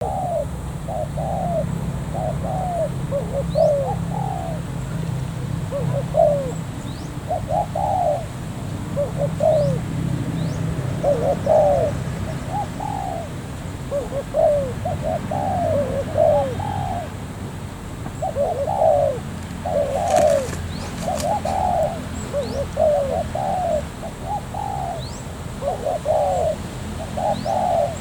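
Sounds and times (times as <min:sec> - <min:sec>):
doves cooing: 0:00.0 - 0:28.0
steady low hum: 0:00.0 - 0:28.0
small bird chirping: 0:18.1 - 0:28.0.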